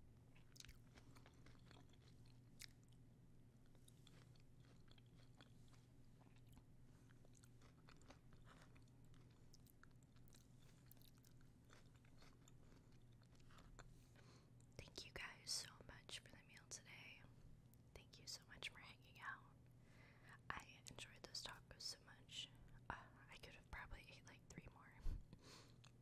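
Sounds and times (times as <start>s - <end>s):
crunchy food chewing: 0.3s - 3.0s, 3.6s - 14.8s.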